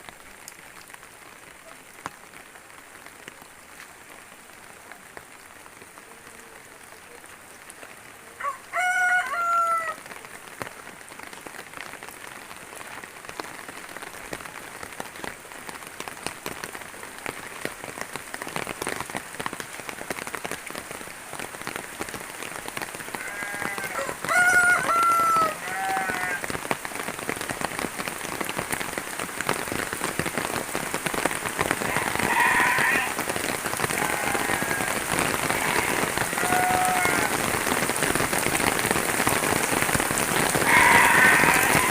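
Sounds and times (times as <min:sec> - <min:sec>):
steady rain falling: 0:00.0 - 0:41.9
rooster crowing: 0:08.4 - 0:10.0, 0:23.4 - 0:26.4, 0:35.7 - 0:37.4, 0:40.6 - 0:41.9.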